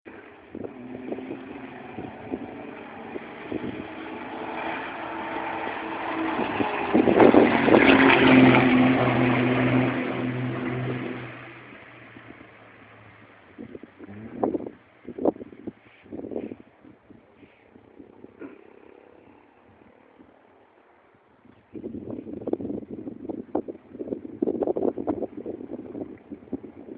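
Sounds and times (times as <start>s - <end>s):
racing truck driving past: 0.5s - 14.7s.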